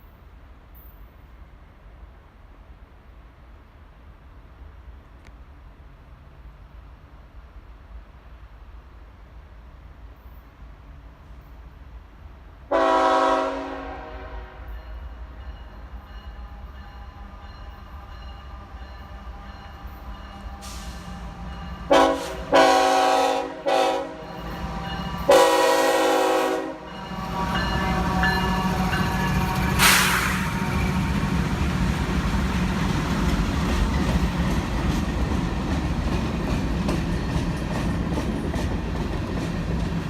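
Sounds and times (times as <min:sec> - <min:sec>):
locomotive air horn blasts: 0:12.7 - 0:14.8, 0:21.9 - 0:24.4, 0:25.2 - 0:28.2.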